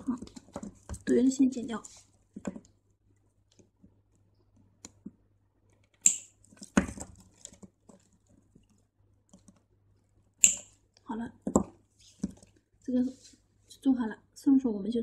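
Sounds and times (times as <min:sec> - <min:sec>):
scissors snipping: 0:06.0 - 0:06.3, 0:10.4 - 0:10.7.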